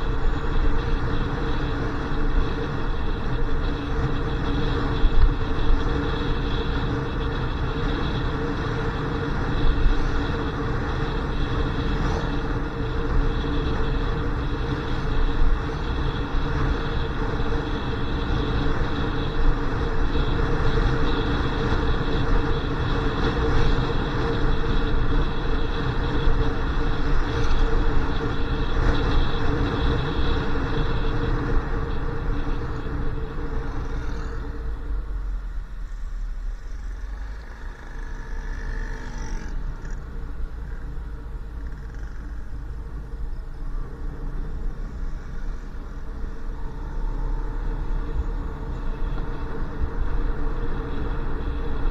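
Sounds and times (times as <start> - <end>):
motorcycle engine running: 0.0 - 51.9
wind and road noise: 0.0 - 51.9.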